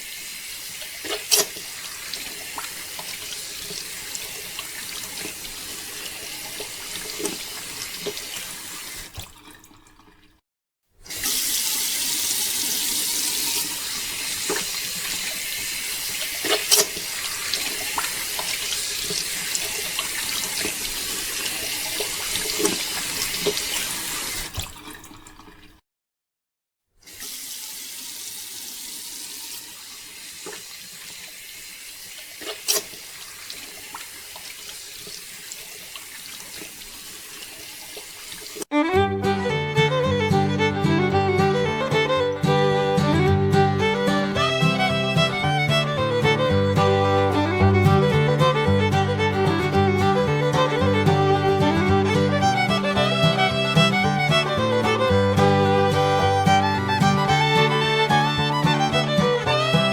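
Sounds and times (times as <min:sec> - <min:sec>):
water pouring: 0:00.0 - 0:10.4, 0:11.0 - 0:25.8, 0:27.0 - 0:38.7
knocks or splashes: 0:09.0 - 0:10.1, 0:16.2 - 0:23.8, 0:24.4 - 0:25.6.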